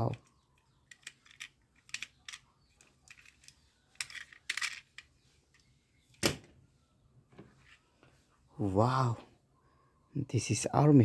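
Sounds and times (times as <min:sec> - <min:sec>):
plastic toys clicking and rattling: 0:00.0 - 0:05.6.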